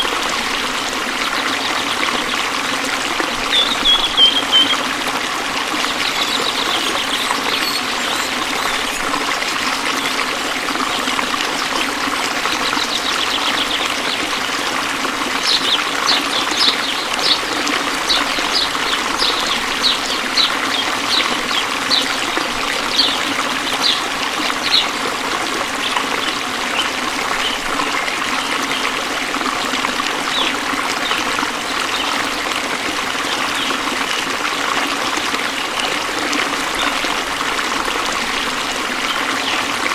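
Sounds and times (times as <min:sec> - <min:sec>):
waterfall splashing: 0:00.0 - 0:39.9
short high chirps: 0:03.6 - 0:04.8, 0:06.2 - 0:09.1.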